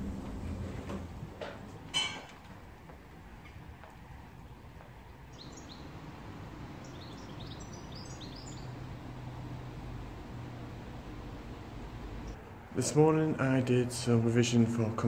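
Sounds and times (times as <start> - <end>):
low outdoor rumble: 0.0 - 15.0
songbird chirping: 4.4 - 12.4.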